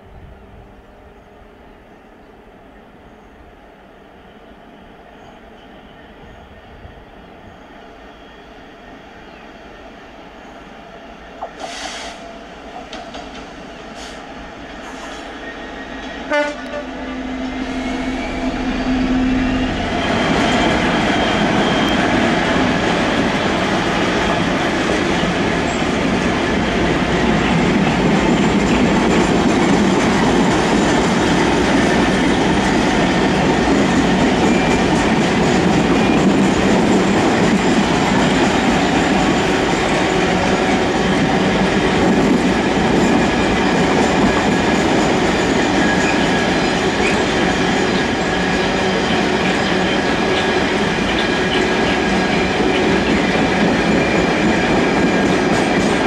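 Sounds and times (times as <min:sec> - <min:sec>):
diesel locomotive passing: 0:00.0 - 0:56.0
train horn: 0:14.9 - 0:22.5.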